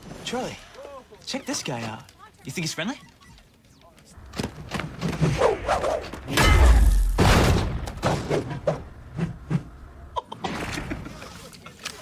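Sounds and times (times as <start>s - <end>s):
crashes and thuds: 6.0s - 8.9s
deep boom: 6.3s - 8.0s.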